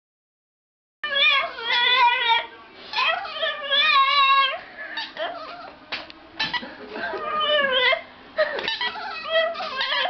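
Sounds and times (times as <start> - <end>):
dog whining: 1.0 - 5.8, 6.4 - 10.0.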